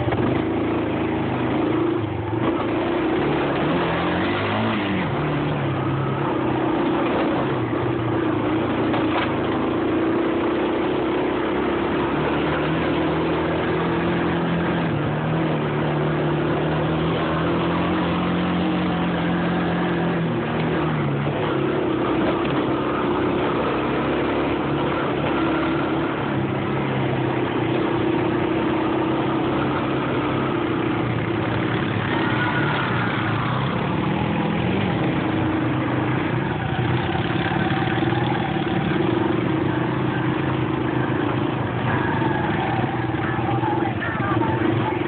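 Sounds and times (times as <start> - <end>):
vehicle engine running: 0.0 - 45.0.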